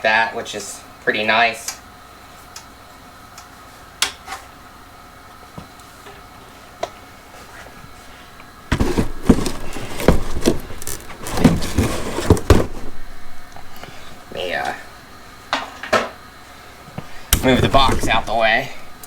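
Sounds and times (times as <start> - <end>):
objects rustling and clattering: 7.3 - 14.2, 16.9 - 19.0.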